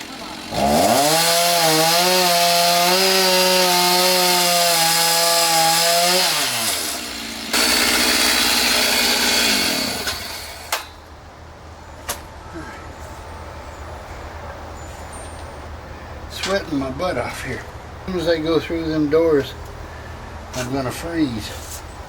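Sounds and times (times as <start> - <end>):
chainsaw revving: 0.0 - 10.9.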